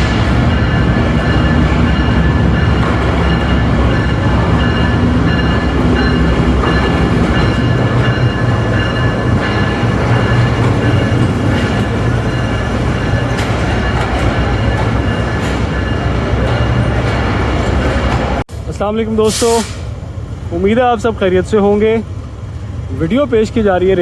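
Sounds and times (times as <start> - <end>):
diesel train engine drone: 0.0 - 24.0.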